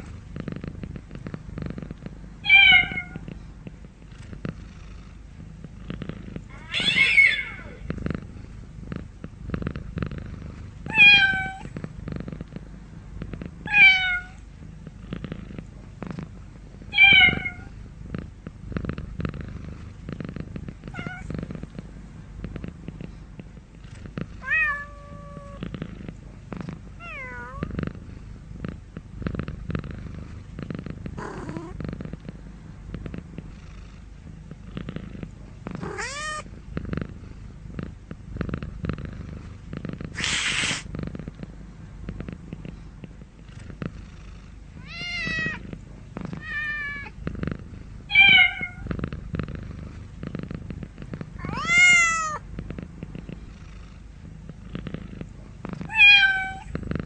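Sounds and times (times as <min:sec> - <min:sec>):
cat purring: 0:00.0 - 0:57.0
cat meowing: 0:02.5 - 0:03.2, 0:06.5 - 0:07.8, 0:10.9 - 0:11.6, 0:13.7 - 0:14.4, 0:35.8 - 0:36.4, 0:44.8 - 0:45.6, 0:48.1 - 0:48.9, 0:51.4 - 0:52.4, 0:55.9 - 0:56.7.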